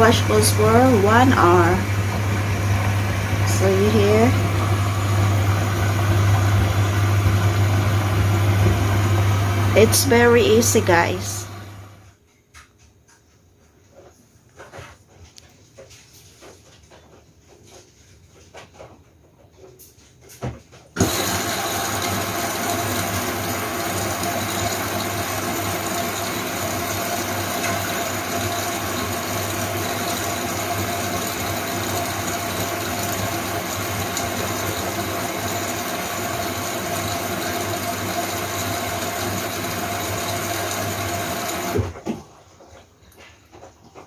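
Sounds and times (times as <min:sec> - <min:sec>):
washing machine motor hum: 0:00.0 - 0:12.1, 0:21.0 - 0:44.0.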